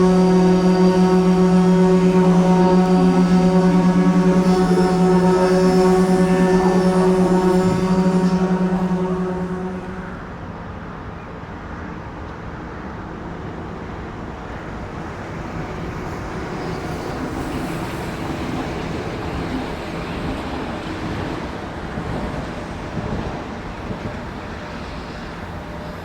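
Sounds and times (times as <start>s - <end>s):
train rumbling past: 0.0s - 10.4s.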